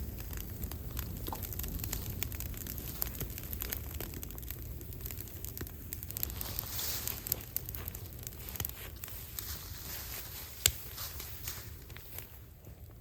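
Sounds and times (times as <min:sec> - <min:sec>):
fire snaps and pops: 0:00.0 - 0:13.0
wood fire crackling: 0:00.0 - 0:13.0.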